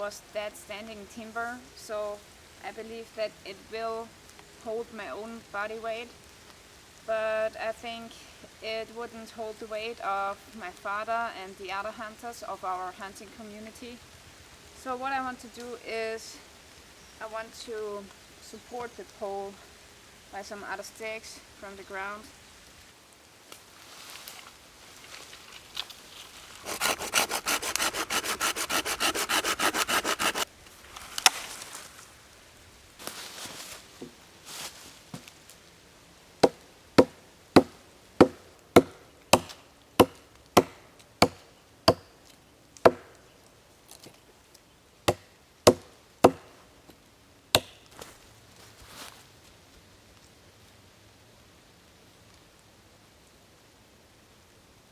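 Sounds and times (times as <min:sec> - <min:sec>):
hand saw cutting wood: 0:26.6 - 0:30.5, 0:36.4 - 0:42.0, 0:45.1 - 0:46.4
sharp blows on wood: 0:26.6 - 0:30.5, 0:36.4 - 0:42.1, 0:42.9 - 0:43.1, 0:45.1 - 0:46.5.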